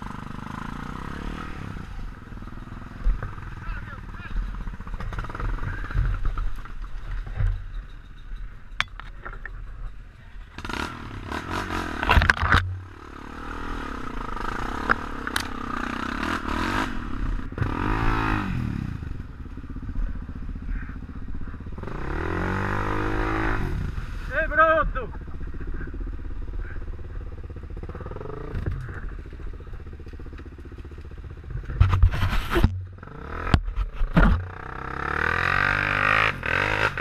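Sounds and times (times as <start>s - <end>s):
motorcycle engines revving: 0.0s - 37.0s
harsh scraping and clattering: 31.6s - 32.8s.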